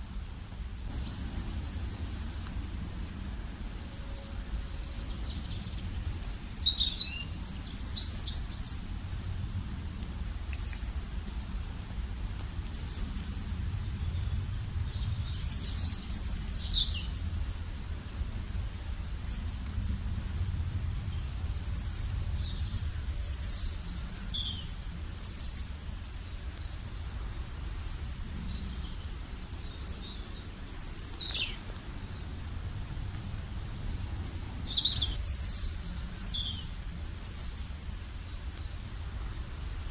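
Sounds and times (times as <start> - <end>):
faint low rumble: 0.0 - 39.9
birds chirping: 0.9 - 9.0, 12.6 - 17.4, 20.4 - 39.9.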